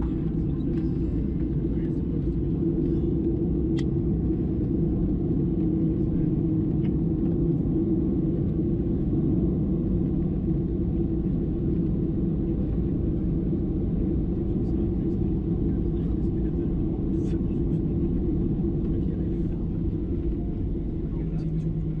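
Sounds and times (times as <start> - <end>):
airplane cabin low rumble: 0.0 - 22.0.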